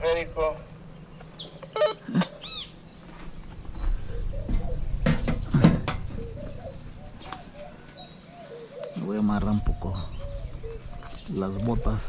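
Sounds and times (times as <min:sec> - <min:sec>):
bird chirps and calls: 0:01.2 - 0:03.0, 0:03.7 - 0:12.0
sharp knocks: 0:04.4 - 0:06.4.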